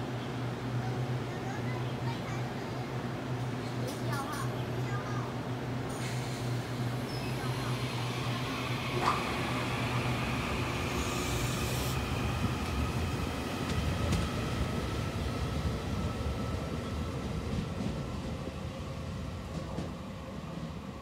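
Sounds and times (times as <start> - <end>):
electric train rolling past: 5.3 - 21.0.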